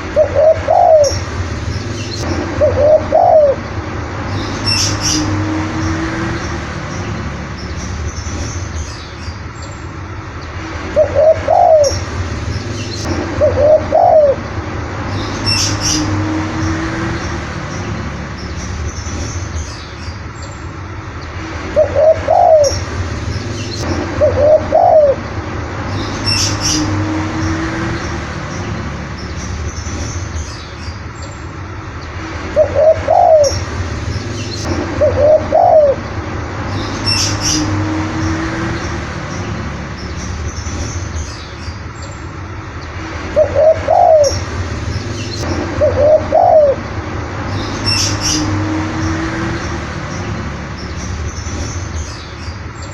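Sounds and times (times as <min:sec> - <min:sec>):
dove cooing: 0:00.0 - 0:01.2, 0:02.6 - 0:03.6, 0:11.0 - 0:12.0, 0:13.4 - 0:14.4, 0:21.8 - 0:22.8, 0:24.2 - 0:25.2, 0:32.6 - 0:33.6, 0:35.0 - 0:36.0, 0:43.4 - 0:44.4, 0:45.8 - 0:46.8.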